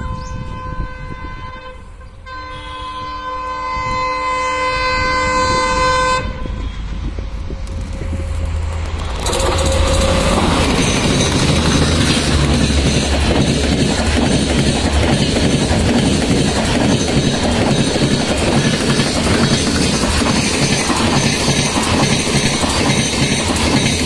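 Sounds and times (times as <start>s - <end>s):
train horn chord: 0.0s - 7.8s
train wheel noise: 3.0s - 24.0s
diesel engine rumble: 6.2s - 21.1s.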